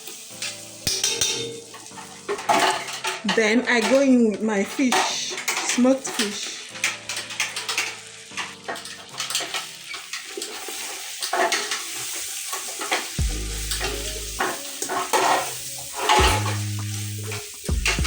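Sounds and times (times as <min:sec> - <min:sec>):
background music with deep bass: 0:13.2 - 0:18.0.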